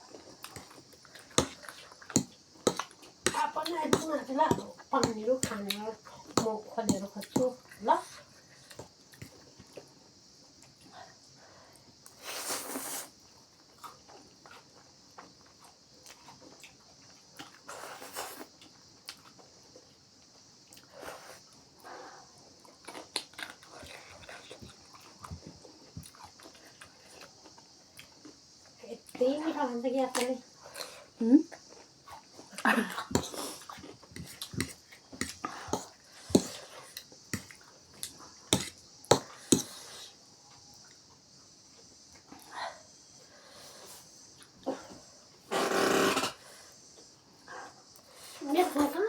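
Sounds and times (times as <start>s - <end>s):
person eating crunchy food: 0.0s - 7.8s, 22.4s - 28.5s, 30.6s - 39.9s
faint steady hiss: 0.0s - 49.0s
eating crunches and clicks: 22.7s - 28.4s.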